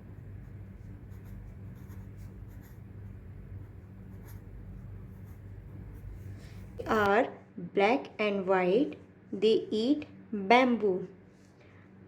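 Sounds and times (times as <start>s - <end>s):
pen scratching on paper: 0.0s - 7.1s
low steady hum: 0.0s - 12.0s.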